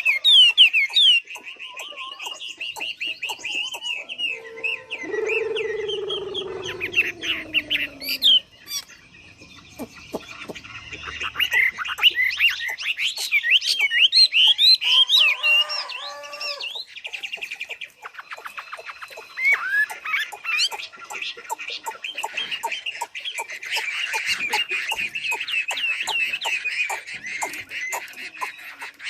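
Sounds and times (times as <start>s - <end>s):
songbird singing: 0.0s - 29.0s
low drawn-out bird call: 0.1s - 12.8s.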